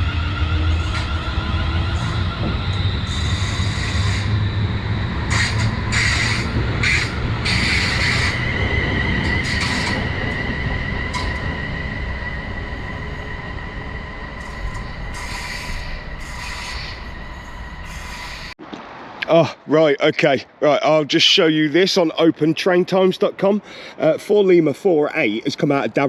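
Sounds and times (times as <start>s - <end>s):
train rumble: 0.0s - 18.6s
train wheel squeal: 0.0s - 18.6s.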